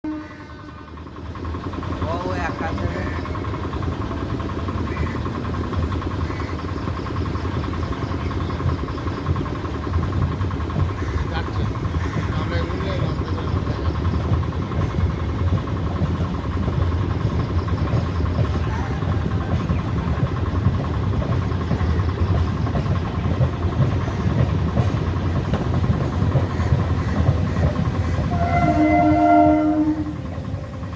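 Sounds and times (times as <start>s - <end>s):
train horn chord: 0.0s - 0.9s, 28.3s - 30.4s
train rumbling by: 0.0s - 30.9s.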